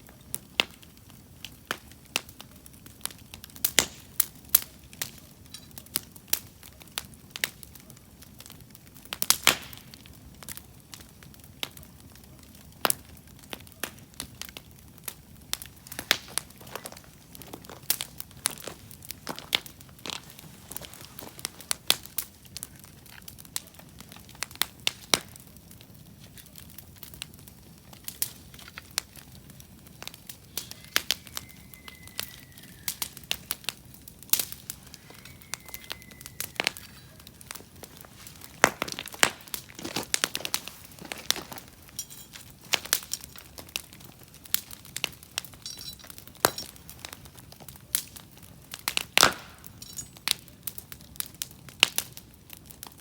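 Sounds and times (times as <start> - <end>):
campfire crackling and popping: 0.0 - 53.0.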